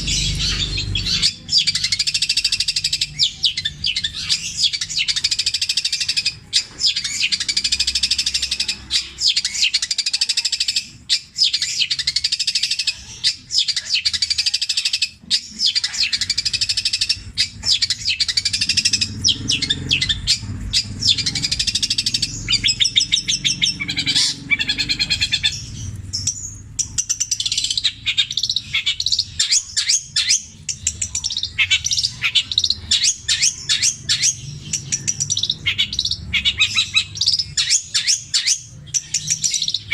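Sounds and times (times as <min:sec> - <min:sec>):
bird singing chirps and whistles: 0:00.0 - 0:39.9.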